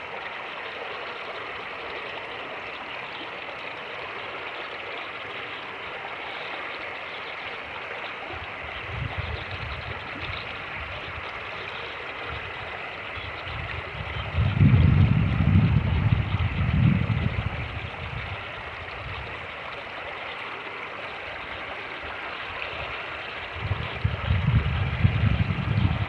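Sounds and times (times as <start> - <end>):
creek running: 0.0 - 26.0
wind buffeting microphone: 8.4 - 11.6, 12.2 - 19.5, 22.0 - 26.0.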